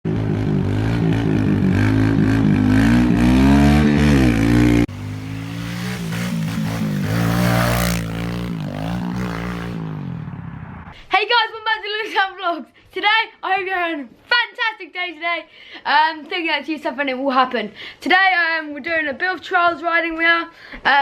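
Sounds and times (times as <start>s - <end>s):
minibike engine revving: 0.1s - 11.0s.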